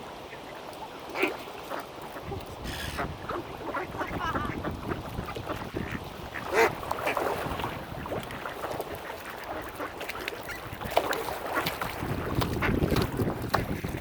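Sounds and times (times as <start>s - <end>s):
ducks quacking: 0.2s - 10.8s
wind buffeting microphone: 2.2s - 9.0s, 10.4s - 14.0s
splashy knocks: 10.8s - 14.0s.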